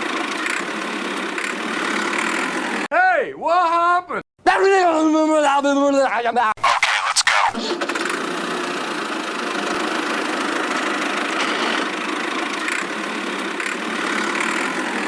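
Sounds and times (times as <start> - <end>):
small motor whirring: 0.0 - 2.8, 7.8 - 15.0.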